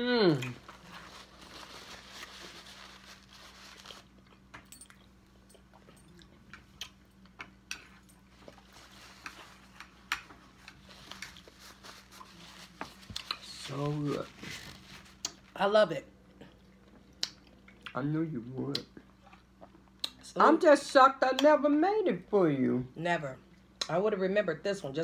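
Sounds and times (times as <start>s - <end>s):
faint low hum: 0.0s - 25.0s
person chewing food: 3.8s - 13.5s, 16.2s - 18.0s, 18.6s - 20.2s.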